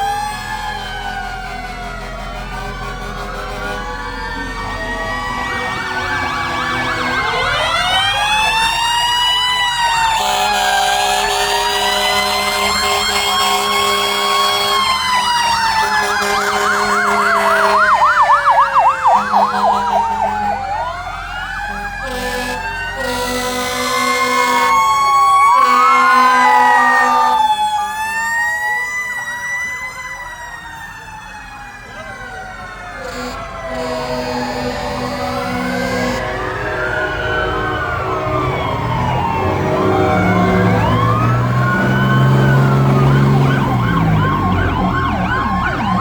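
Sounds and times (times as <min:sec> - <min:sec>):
fire truck sirens wailing: 0:00.0 - 0:46.0
long horn blasts: 0:00.7 - 0:08.7, 0:10.1 - 0:18.2, 0:19.1 - 0:21.0, 0:21.7 - 0:24.9, 0:25.5 - 0:27.5, 0:33.0 - 0:44.5.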